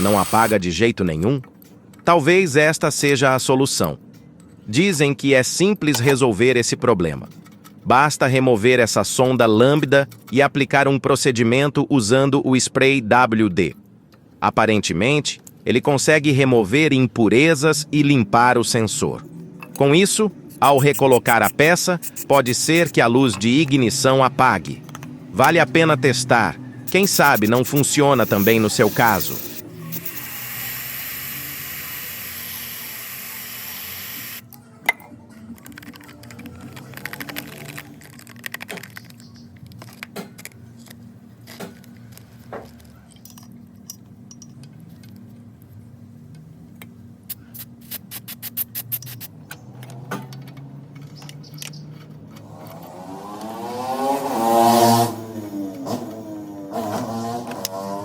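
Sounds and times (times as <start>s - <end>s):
aerosol spray hissing: 0.0s - 0.6s, 20.6s - 23.0s, 26.9s - 34.4s, 47.5s - 49.2s.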